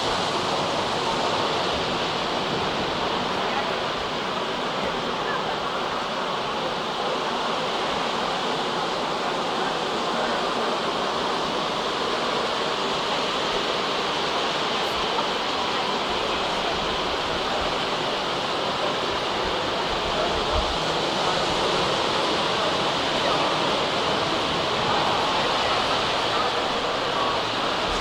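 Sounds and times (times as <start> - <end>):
steady rain hiss: 0.0 - 28.0.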